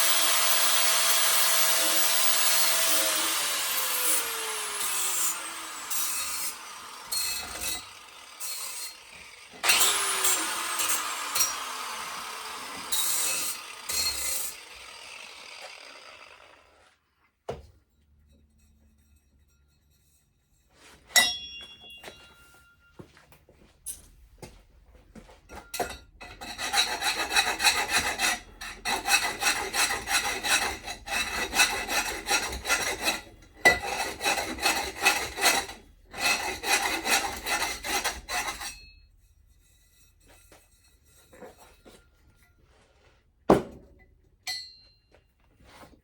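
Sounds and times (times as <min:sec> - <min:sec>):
hand tool rasping: 0:00.0 - 0:16.8, 0:25.8 - 0:38.9.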